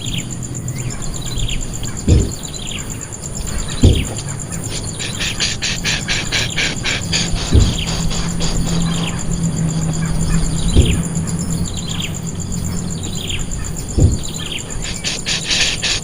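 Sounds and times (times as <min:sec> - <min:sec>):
bird chirping: 0:00.0 - 0:16.0
fast insect-like ticking: 0:00.0 - 0:16.0
low thumps: 0:01.8 - 0:02.8, 0:03.7 - 0:11.8, 0:12.7 - 0:15.0.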